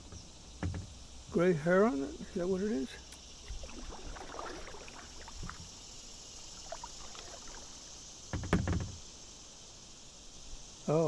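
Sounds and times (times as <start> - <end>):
insects humming: 0.0 - 11.0
paddle dipping and dripping water: 3.0 - 9.1.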